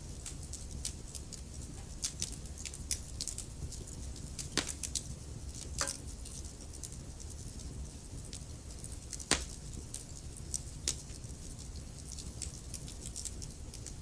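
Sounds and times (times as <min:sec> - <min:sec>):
burning logs popping: 0:00.0 - 0:14.0
low rumble of flames: 0:00.0 - 0:14.0
wood fire crackling: 0:00.0 - 0:14.0.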